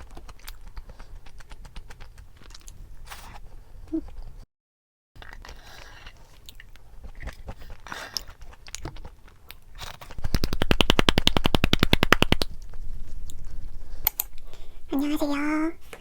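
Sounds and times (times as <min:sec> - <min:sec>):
crunching and chewing: 0:00.0 - 0:03.4, 0:05.2 - 0:10.6.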